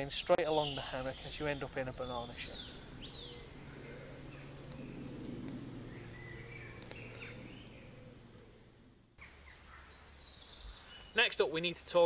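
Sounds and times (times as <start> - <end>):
birds chirping and calling: 0.0 - 12.0
low background hum: 0.9 - 10.8.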